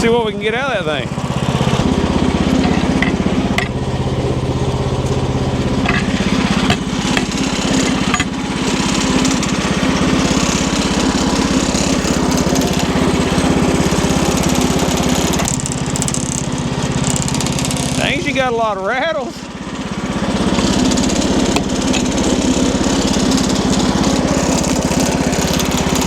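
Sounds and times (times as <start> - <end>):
small engine running: 0.0 - 26.0
sharp rattling knocks: 1.6 - 12.9, 20.3 - 26.0.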